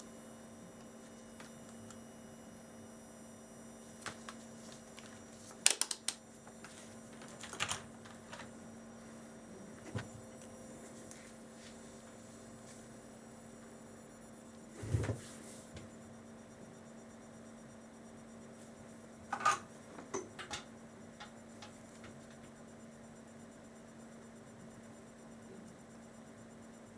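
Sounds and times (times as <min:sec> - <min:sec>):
low electrical hum: 0:00.0 - 0:26.9
clicks and taps of small parts: 0:05.6 - 0:06.2.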